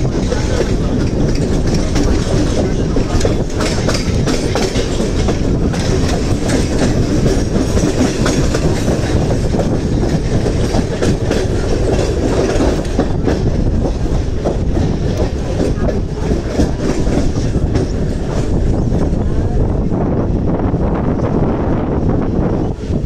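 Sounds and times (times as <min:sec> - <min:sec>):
wheels clacking over rail joints: 0:00.0 - 0:19.6
train rumbling: 0:00.0 - 0:23.0.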